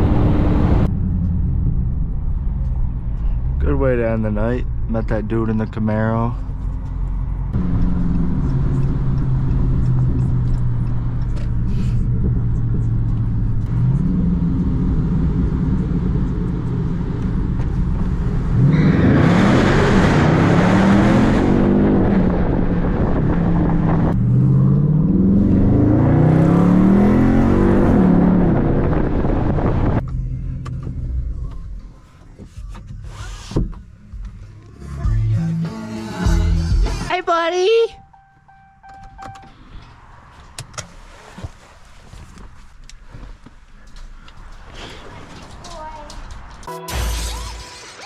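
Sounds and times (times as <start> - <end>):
car engine accelerating: 0.0 - 37.1.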